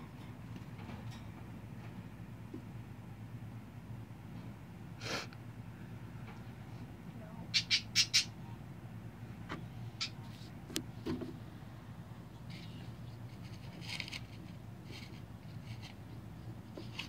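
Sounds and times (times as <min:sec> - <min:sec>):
faint bird chirps: 0:07.4 - 0:08.6
pet bird squawking: 0:07.5 - 0:08.4, 0:10.0 - 0:10.3.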